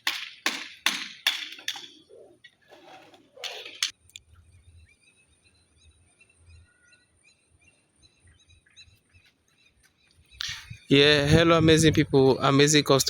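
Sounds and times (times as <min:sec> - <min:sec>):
faint bird chirping: 0:02.0 - 0:11.1.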